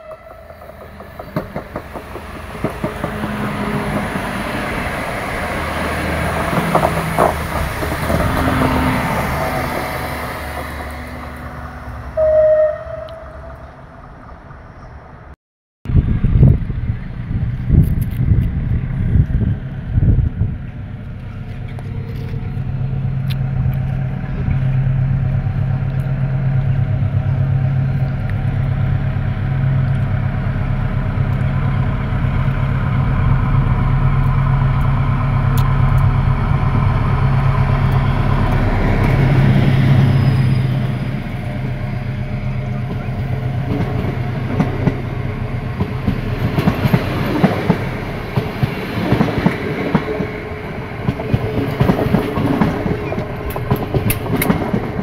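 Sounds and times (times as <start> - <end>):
diesel locomotive engine running: 0.0 - 15.3, 15.9 - 55.0
train wheels clicking over rail joints: 0.1 - 11.6, 42.5 - 55.0.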